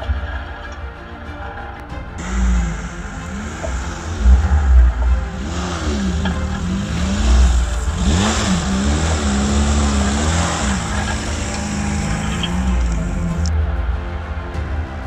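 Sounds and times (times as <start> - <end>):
car engine revving: 0.0 - 15.0
vehicle pushing through brush: 2.2 - 13.8.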